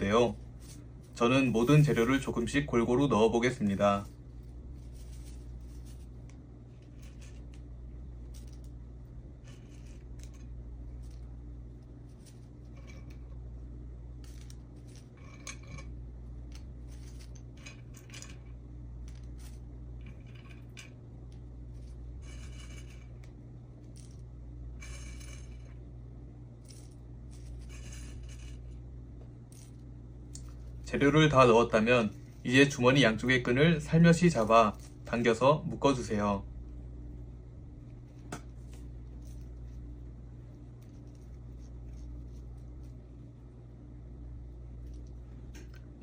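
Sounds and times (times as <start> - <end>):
dried herbs rustling: 0.0 - 8.7, 14.1 - 20.7, 26.5 - 36.3
steady low hum: 0.0 - 46.0.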